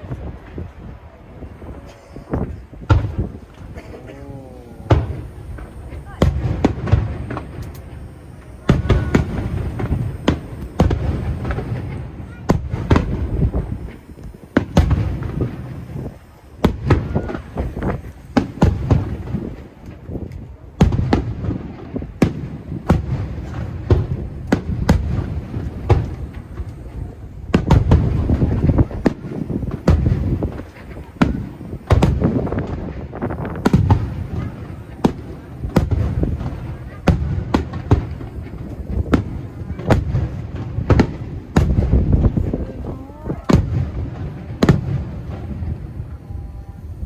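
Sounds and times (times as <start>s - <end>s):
fireworks cracks and booms: 0.0s - 47.0s
low rumbling: 1.3s - 19.7s.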